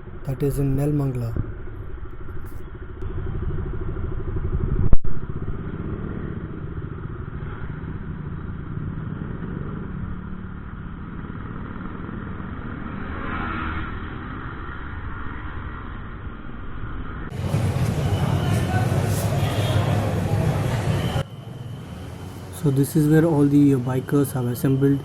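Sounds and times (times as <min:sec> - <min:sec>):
motorcycle engine running: 0:00.0 - 0:13.0, 0:17.2 - 0:22.5.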